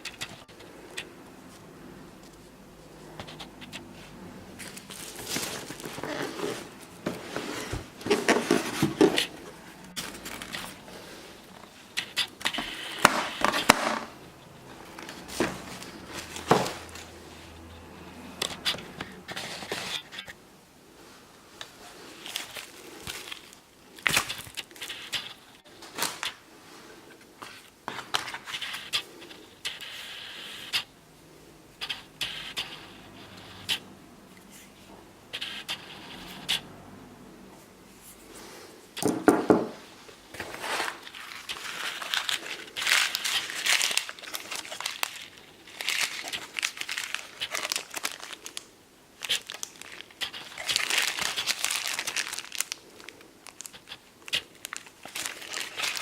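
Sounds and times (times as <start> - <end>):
packaging rustling and crinkling: 4.5 - 14.2, 21.9 - 26.5, 40.3 - 56.0.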